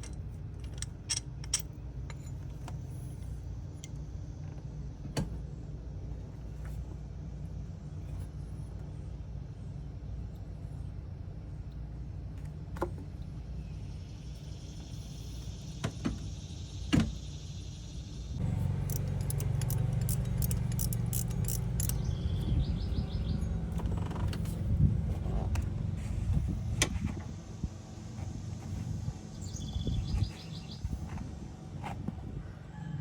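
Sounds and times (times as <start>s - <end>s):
metal tools clinking: 0.0s - 2.5s, 18.4s - 22.3s
steady low hum: 13.2s - 32.7s.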